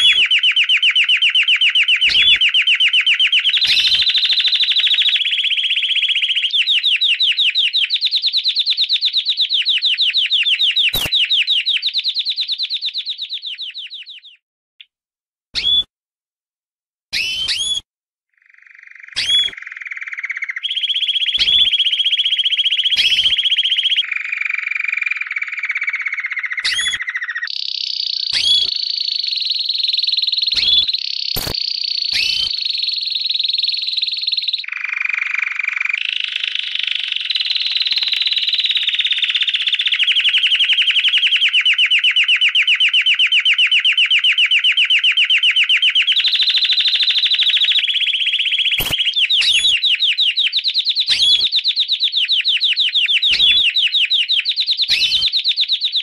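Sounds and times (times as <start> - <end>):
lovebird rapid trilling chatter: 0.0 - 1.0, 1.9 - 5.6, 9.8 - 14.2, 19.2 - 22.0, 26.6 - 39.6, 46.0 - 51.6, 52.2 - 56.0
sharp bird chirps: 0.0 - 14.4, 15.6 - 15.9, 17.1 - 17.8, 18.4 - 56.0.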